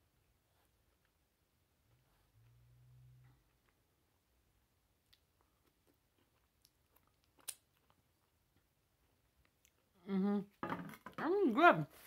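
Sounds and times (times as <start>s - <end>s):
person chewing: 4.9s - 9.9s.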